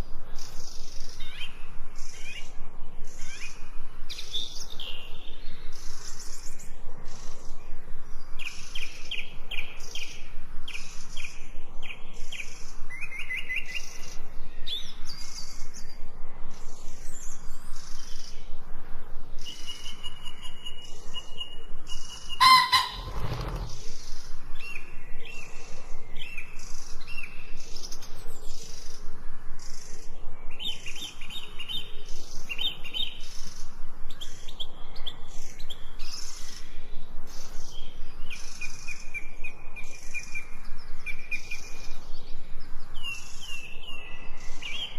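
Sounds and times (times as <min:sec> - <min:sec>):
songbirds chirping: 0:00.0 - 0:44.9
louder lower bird call: 0:22.4 - 0:23.8.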